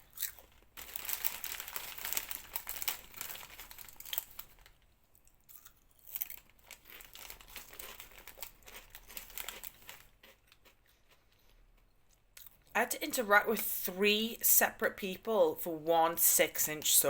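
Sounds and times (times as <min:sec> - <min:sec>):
crinkling and rustling: 0:00.0 - 0:05.3, 0:06.2 - 0:11.6.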